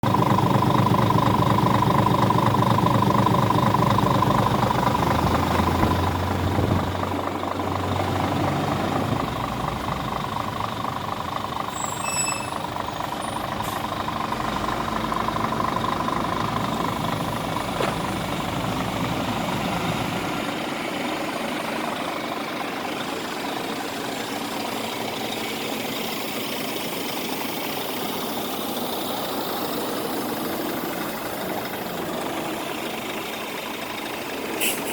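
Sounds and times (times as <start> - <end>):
diesel truck engine running: 0.0 - 34.9.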